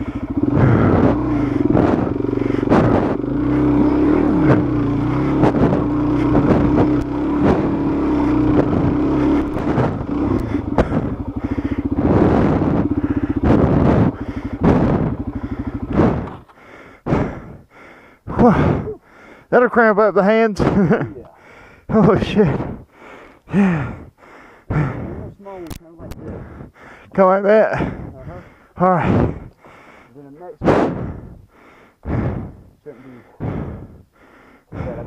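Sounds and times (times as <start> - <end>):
motorcycle engine revving hard: 0.0 - 17.5
motorcycle knocks and clatter: 2.7 - 16.6.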